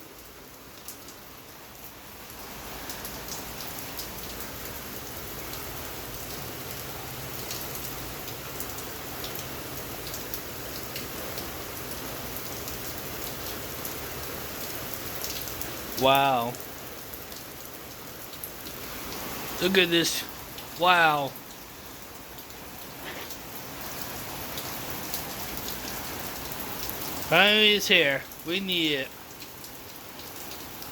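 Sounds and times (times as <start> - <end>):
rain falling: 0.0 - 30.9.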